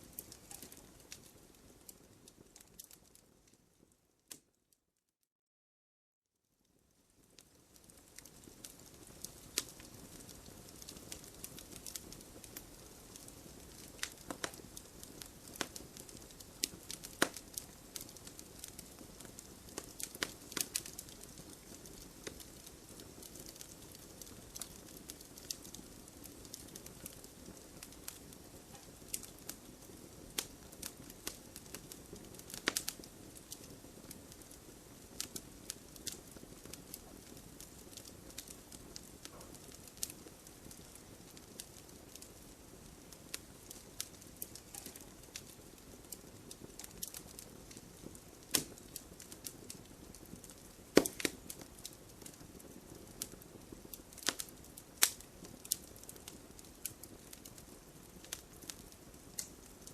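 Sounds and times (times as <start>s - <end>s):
fire hissing softly: 0.0s - 4.6s, 6.4s - 59.9s
wood fire crackling and popping: 0.0s - 4.6s, 7.0s - 59.9s.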